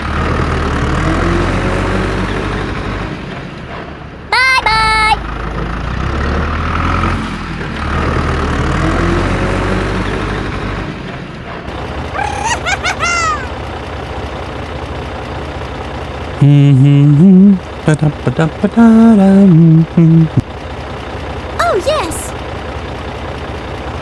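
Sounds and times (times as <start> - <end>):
squeaky cartoon voice sounds: 4.3 - 5.2, 12.2 - 13.5, 21.6 - 22.3.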